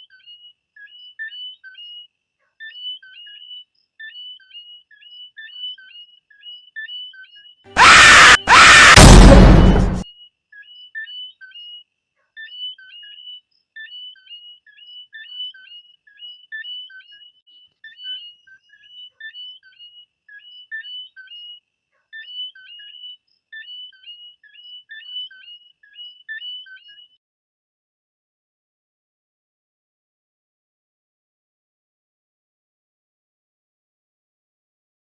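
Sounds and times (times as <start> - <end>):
frogs calling: 10.5 - 27.1.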